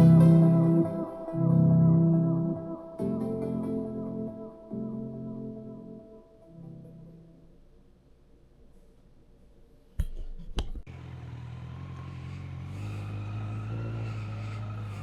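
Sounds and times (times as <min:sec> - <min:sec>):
motorcycle engine running: 0:10.9 - 0:15.0.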